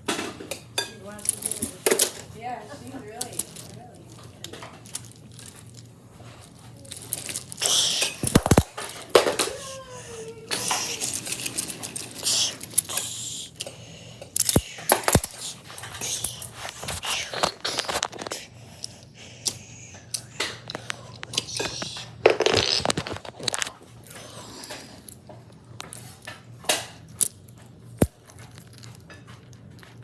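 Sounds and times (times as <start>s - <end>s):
wooden toy train pieces clattering: 0.9s - 13.3s, 20.4s - 23.8s
scraping and rustling: 20.6s - 26.6s.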